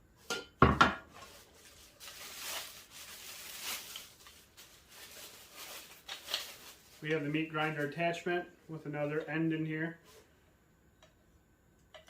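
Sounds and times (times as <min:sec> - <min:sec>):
packaging rustling and scraping: 0:01.1 - 0:08.0.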